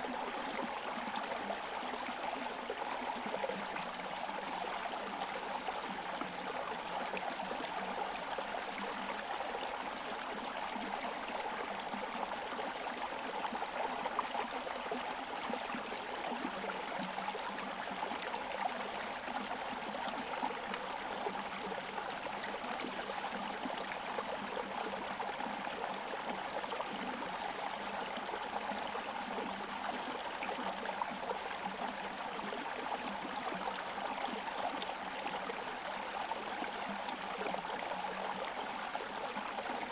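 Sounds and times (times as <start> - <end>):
stream running and gurgling: 0.0 - 39.9.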